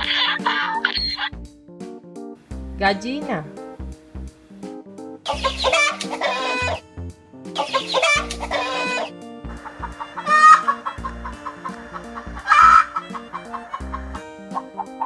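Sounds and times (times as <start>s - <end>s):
hen cackling and clucking: 0.0s - 1.3s, 5.3s - 6.8s, 7.6s - 15.0s
background music with steady beat: 0.0s - 15.0s.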